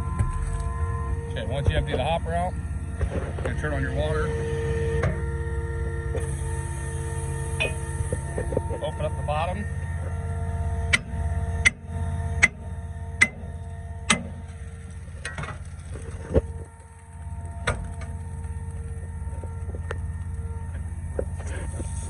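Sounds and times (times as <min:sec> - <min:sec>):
pump engine running: 0:00.0 - 0:22.0.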